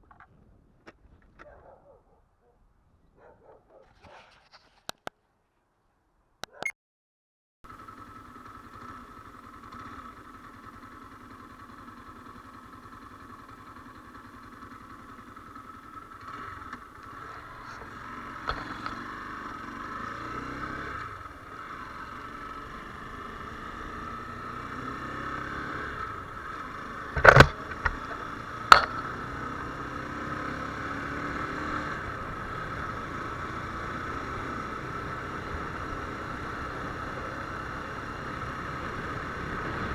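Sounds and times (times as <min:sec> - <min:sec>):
motorcycle engine running: 0:07.7 - 0:39.9
sharp knocks: 0:27.2 - 0:29.2.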